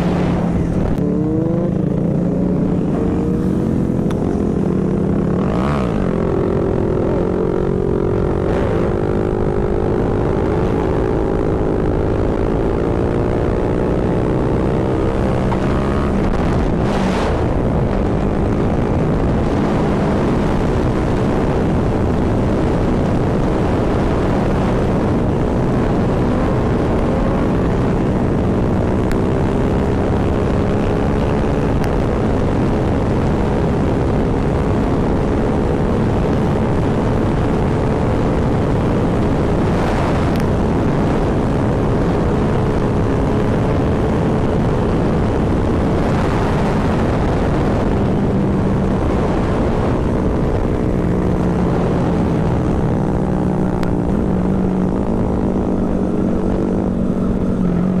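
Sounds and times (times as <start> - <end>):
motorcycle engine running: 0.0 - 58.0
wind on microphone: 0.0 - 58.0.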